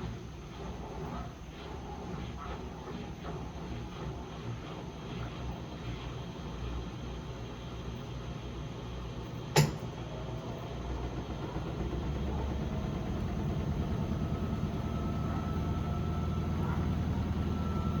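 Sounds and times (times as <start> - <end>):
washing machine humming: 0.0 - 18.0
faint rising whine: 12.3 - 18.0.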